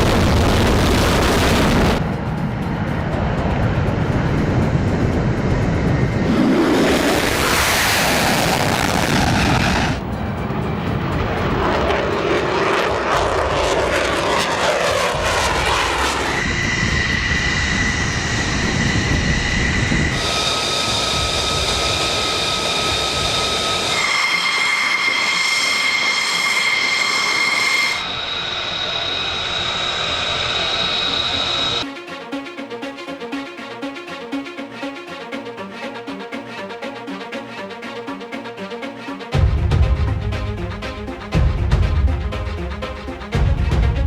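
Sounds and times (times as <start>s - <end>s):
steady high whine: 0.0s - 32.5s
jet engines running: 0.0s - 44.0s.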